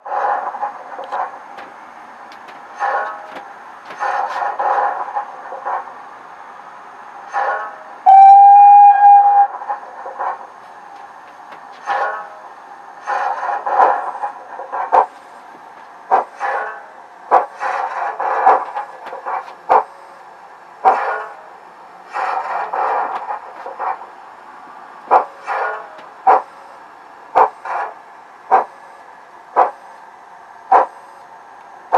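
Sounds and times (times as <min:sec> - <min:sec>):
steam exhaust chuffs: 0:00.0 - 0:31.9
steam whistle blast: 0:08.0 - 0:09.8.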